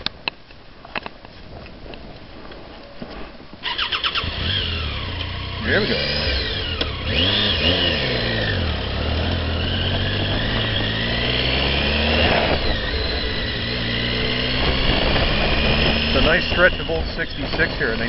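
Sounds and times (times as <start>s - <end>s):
wind noise: 0.0s - 4.9s, 6.2s - 18.0s
motorcycle engine running: 3.6s - 18.0s.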